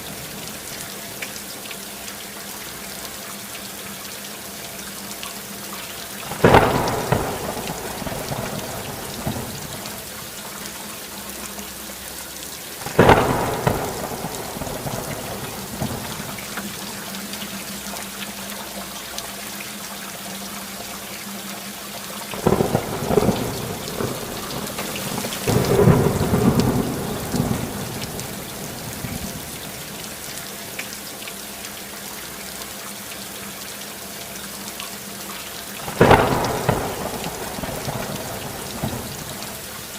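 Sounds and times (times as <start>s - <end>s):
steady rain falling: 0.0s - 39.9s
thunder claps and rumble: 6.3s - 10.2s, 12.8s - 17.0s, 22.4s - 30.2s, 35.8s - 39.9s.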